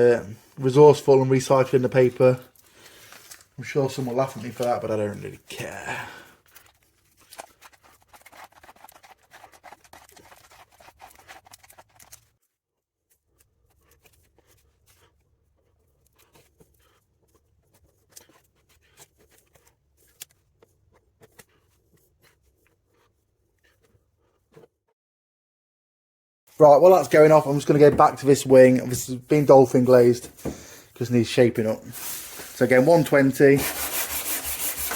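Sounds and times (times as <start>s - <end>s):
spreader scraping filler on paper: 6.5s - 12.3s, 31.9s - 34.9s.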